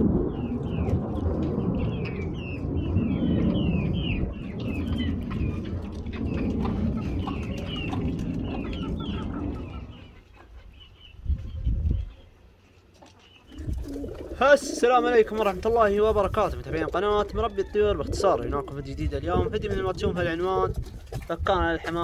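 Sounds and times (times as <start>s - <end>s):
low rumble: 0.0s - 10.3s
chicks peeping: 0.2s - 22.0s.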